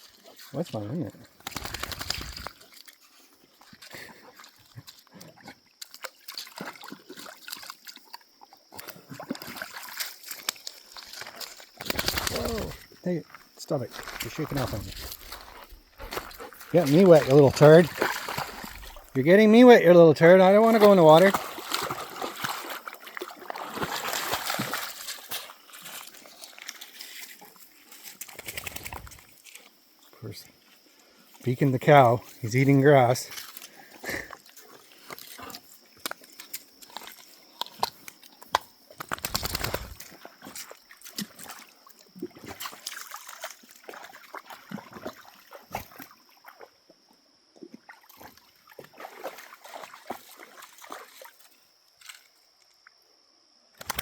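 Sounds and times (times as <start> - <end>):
water sloshing and dripping: 0.0 - 29.6, 32.4 - 38.5, 39.4 - 46.7, 47.6 - 52.3
water trickling: 14.1 - 19.8
dog breathing: 15.4 - 16.7.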